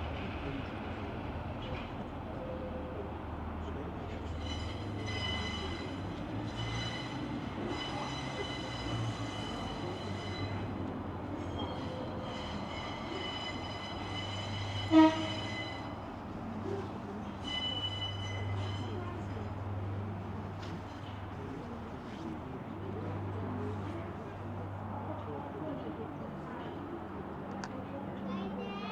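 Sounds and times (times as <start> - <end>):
train rumble: 0.0 - 28.9
train horn toot: 4.4 - 10.7, 11.7 - 16.0.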